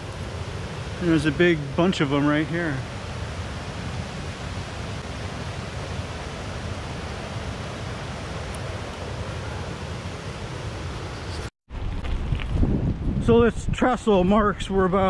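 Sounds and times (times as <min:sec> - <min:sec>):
wind buffeting microphone: 0:11.7 - 0:15.0.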